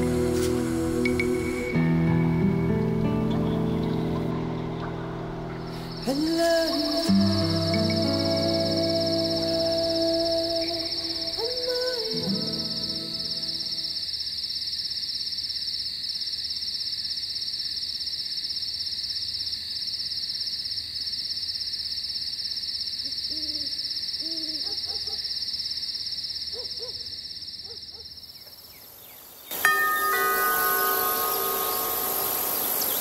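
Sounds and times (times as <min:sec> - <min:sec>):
insect trill: 0:00.0 - 0:33.0
faint low hoots: 0:23.3 - 0:25.2
held chime-like tones: 0:29.6 - 0:33.0.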